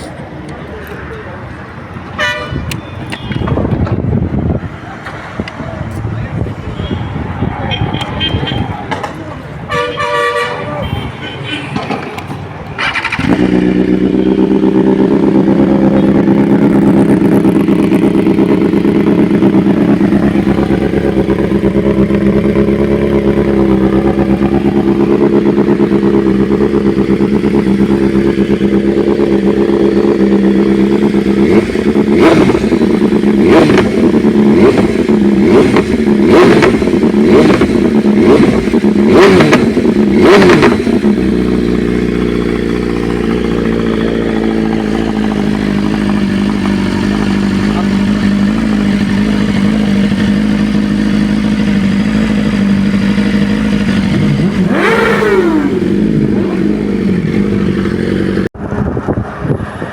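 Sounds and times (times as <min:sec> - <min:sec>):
motorcycle engines idling: 0:11.8 - 0:58.5
engine revving: 0:12.7 - 0:59.9.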